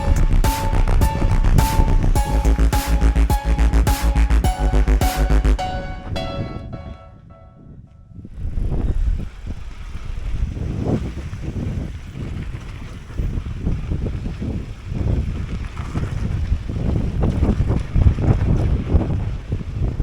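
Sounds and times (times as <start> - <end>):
wind buffeting microphone: 7.4 - 20.0.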